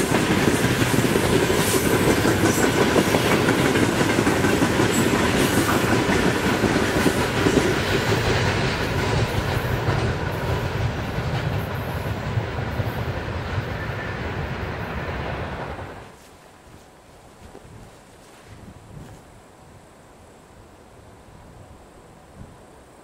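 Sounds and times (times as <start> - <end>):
train wheels clattering over rail joints: 0.0 - 13.8.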